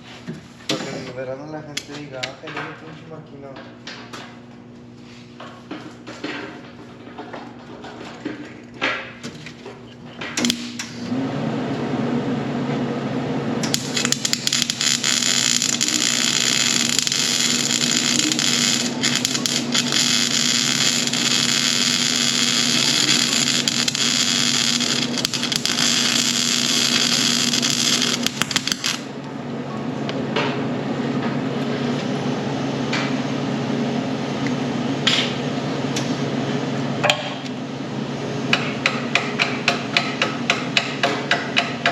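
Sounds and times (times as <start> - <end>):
welding machine hum: 5.0 - 30.2
crackling hissing welding arc: 13.6 - 29.1.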